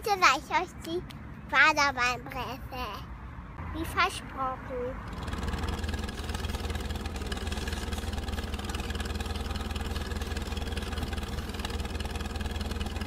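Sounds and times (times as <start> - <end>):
tractor engine running: 5.0 - 13.0.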